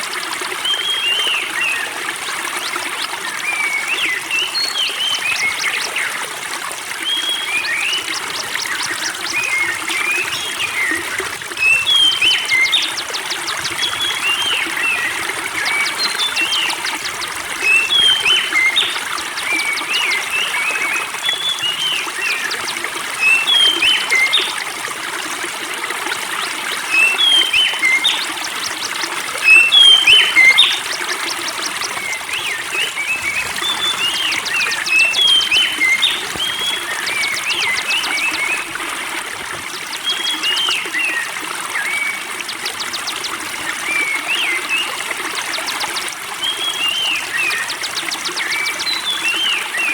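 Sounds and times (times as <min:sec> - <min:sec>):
water trickling: 0:00.0 - 0:49.9
songbird whistling: 0:11.6 - 0:24.5, 0:26.4 - 0:38.8.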